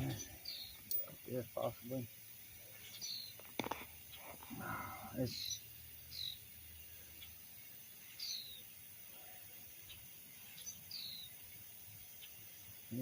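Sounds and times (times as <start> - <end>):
low background hiss: 0.0 - 13.0
high bird chirps: 5.2 - 6.5, 8.1 - 8.7, 9.9 - 11.4.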